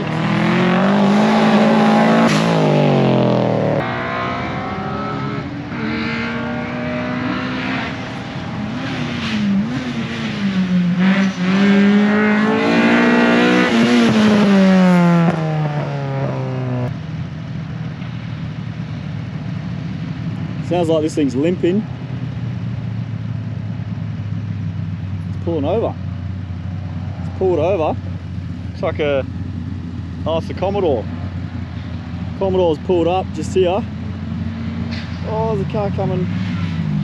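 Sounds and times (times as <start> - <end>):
rally car engine revving: 0.0 - 17.0, 26.6 - 37.0.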